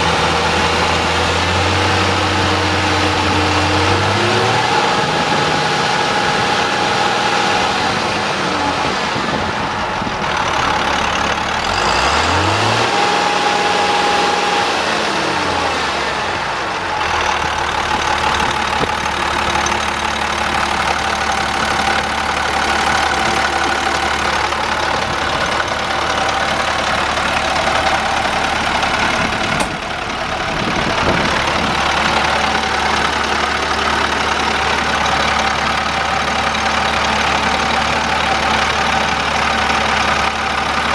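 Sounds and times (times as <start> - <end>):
truck diesel engine running: 0.0 - 40.9
sharp click: 29.6 - 29.9.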